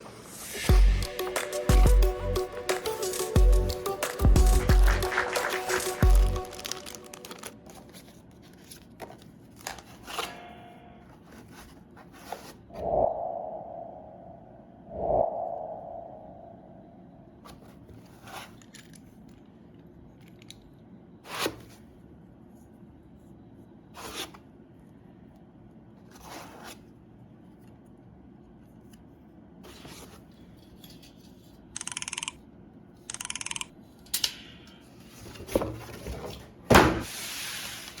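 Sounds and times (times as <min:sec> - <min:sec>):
packaging rustling and knocks: 0:05.1 - 0:10.2.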